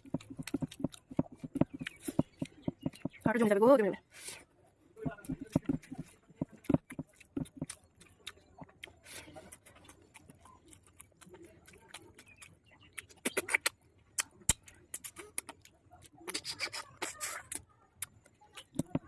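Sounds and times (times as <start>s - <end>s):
crunching and smacking: 0.0s - 3.2s, 5.0s - 16.5s
chewing clicks and smacks: 0.0s - 3.4s, 5.0s - 19.0s.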